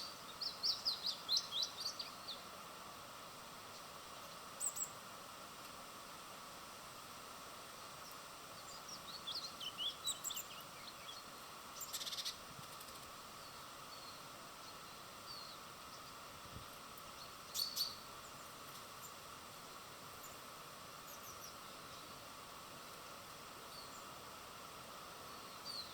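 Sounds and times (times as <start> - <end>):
small birds chirping: 0.0 - 2.6, 3.6 - 5.0, 8.0 - 22.3, 23.6 - 24.2, 25.2 - 25.9
steady outdoor hiss: 0.0 - 25.9.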